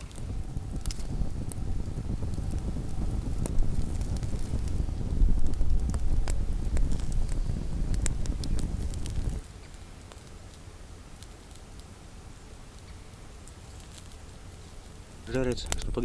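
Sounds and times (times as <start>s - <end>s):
wind on microphone: 0.0s - 9.4s, 14.6s - 16.0s
campfire crackling and popping: 0.0s - 16.0s.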